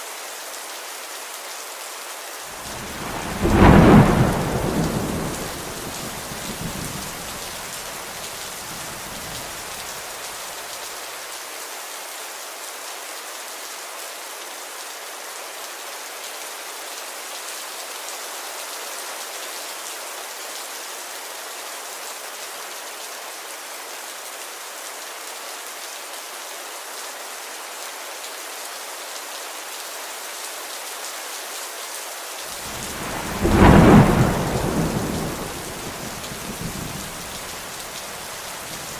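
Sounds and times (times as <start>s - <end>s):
steady rain falling: 0.0s - 38.9s
thunder rumbling: 2.6s - 9.8s, 32.6s - 38.9s.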